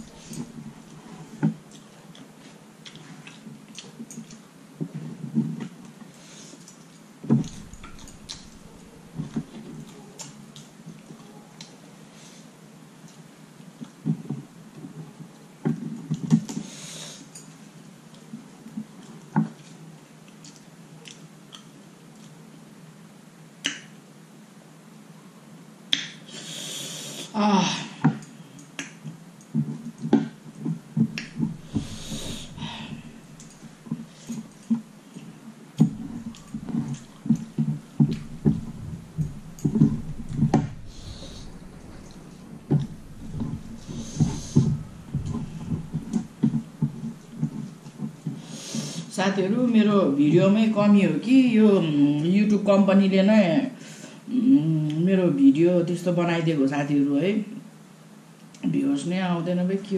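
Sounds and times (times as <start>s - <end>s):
short noisy breath: 31.4s - 33.9s, 38.0s - 47.4s.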